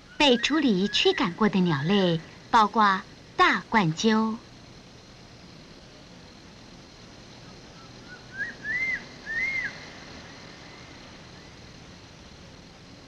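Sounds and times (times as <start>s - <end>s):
eagle whistling calls: 0.0s - 1.9s, 7.7s - 9.8s.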